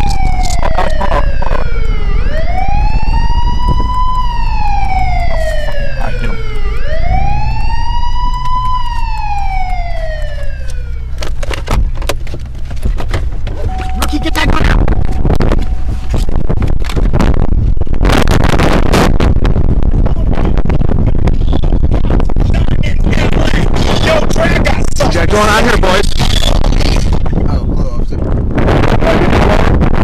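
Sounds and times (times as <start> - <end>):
wail siren: 0.0 - 11.2, 13.6 - 17.5
car engine and road rumble: 0.0 - 30.0.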